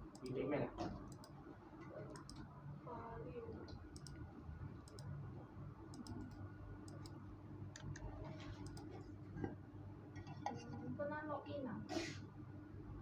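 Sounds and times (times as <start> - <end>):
low steady hum: 0.0 - 13.0
light clicks: 2.1 - 2.4, 4.0 - 4.2.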